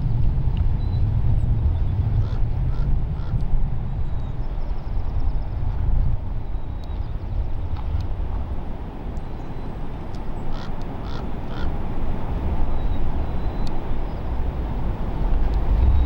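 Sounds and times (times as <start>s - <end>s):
low outdoor rumble: 0.0s - 16.0s
bird harsh calls: 10.5s - 11.8s.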